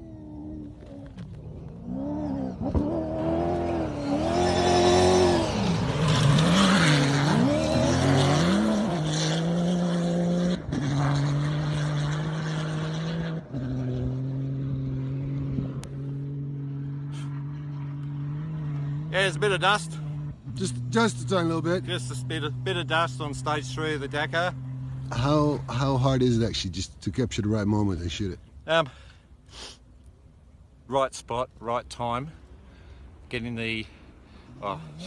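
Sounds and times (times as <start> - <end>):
rally car engine passing: 0.0 - 28.2, 33.8 - 35.0.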